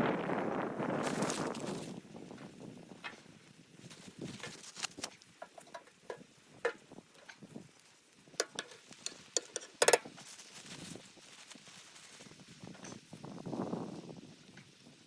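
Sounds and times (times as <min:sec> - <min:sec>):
objects clicking and knocking: 0:04.4 - 0:07.4, 0:08.4 - 0:10.2.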